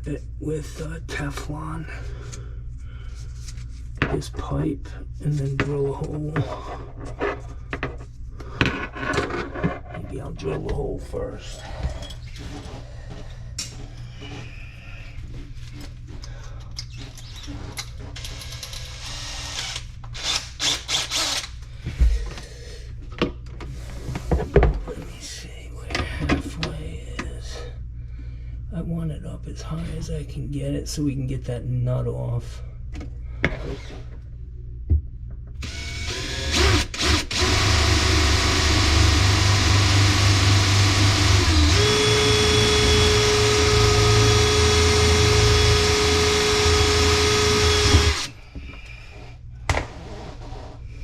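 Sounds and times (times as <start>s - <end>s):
power drill boring into pipe: 18.9s - 21.5s, 35.6s - 48.3s.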